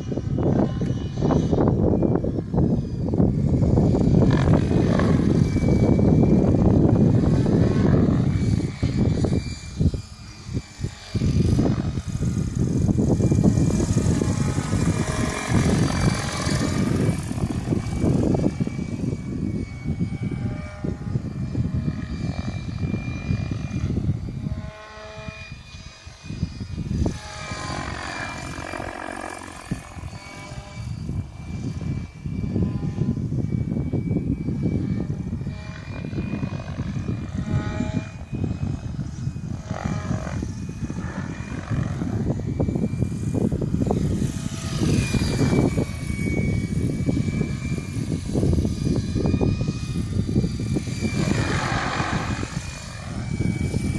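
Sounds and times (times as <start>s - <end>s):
helicopter rotor rush: 0.0s - 53.9s
motor whine: 0.0s - 53.9s.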